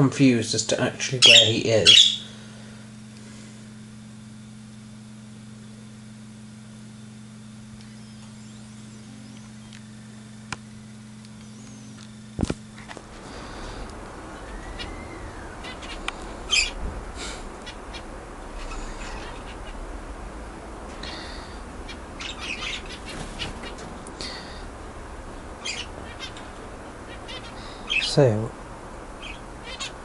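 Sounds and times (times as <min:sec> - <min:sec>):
steady low hum: 0:00.0 - 0:30.0
budgerigar chirping: 0:01.2 - 0:02.3, 0:14.4 - 0:16.8, 0:17.6 - 0:19.8, 0:21.8 - 0:23.8, 0:25.6 - 0:28.2, 0:29.2 - 0:30.0.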